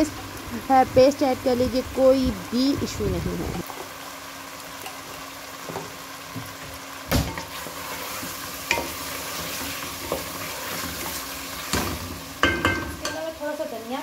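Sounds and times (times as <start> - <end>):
chicken sizzling in a pot: 0.0 - 14.0
spoon knocking against pot: 12.4 - 13.2.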